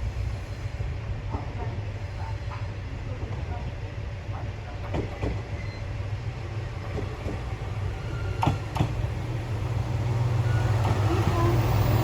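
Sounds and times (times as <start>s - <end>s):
diesel railcar engine rumbling: 0.0s - 12.0s.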